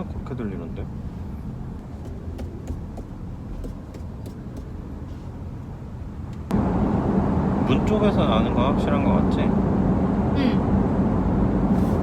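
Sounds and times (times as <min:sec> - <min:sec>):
road and tyre rumble: 0:00.0 - 0:12.0
light irregular ticks from car door: 0:02.0 - 0:04.7.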